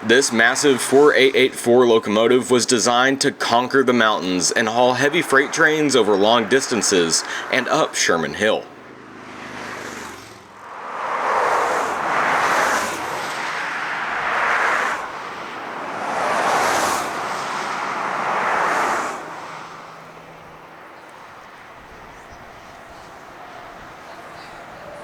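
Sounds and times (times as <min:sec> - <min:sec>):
steam locomotive rushing by: 0:00.0 - 0:08.7, 0:09.3 - 0:19.3.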